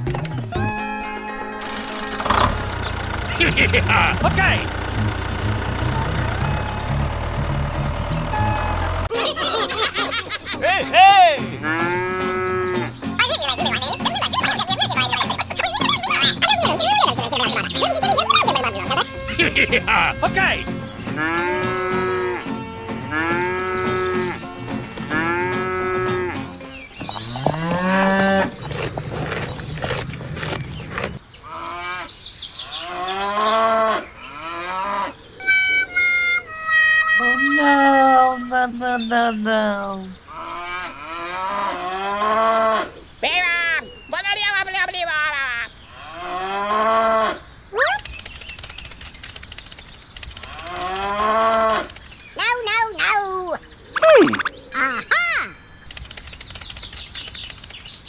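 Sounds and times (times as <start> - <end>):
cow mooing: 3.0 - 9.1, 11.6 - 12.9, 19.1 - 26.4, 27.2 - 28.5
rapid faint clicking: 48.0 - 52.4, 55.8 - 58.0.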